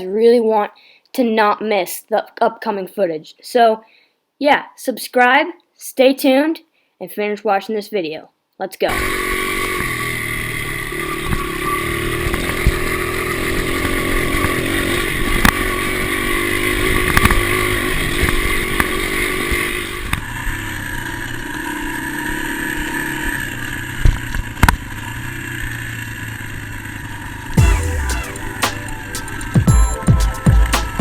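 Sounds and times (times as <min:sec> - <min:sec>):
dirt bike engine running: 0:08.9 - 0:31.0.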